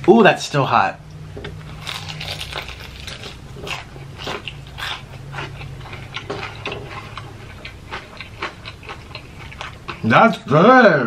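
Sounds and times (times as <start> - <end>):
crispy chicken crunching: 1.7 - 10.1.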